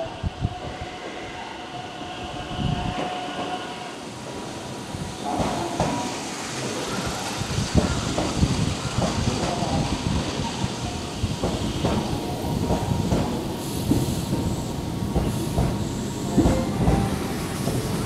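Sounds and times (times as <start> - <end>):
train whining tone: 0.0 - 4.3, 11.6 - 18.0
train wheels clattering over rail joints: 11.4 - 18.0.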